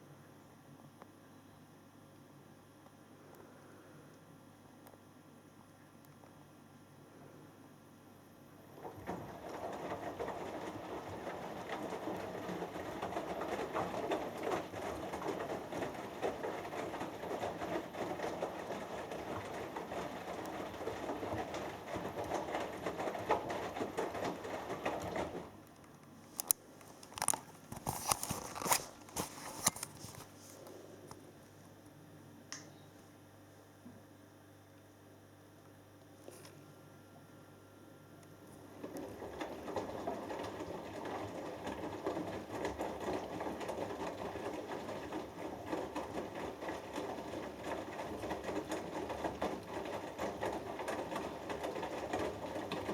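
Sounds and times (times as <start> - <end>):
washing machine drum sloshing: 8.5 - 25.6, 38.4 - 52.9.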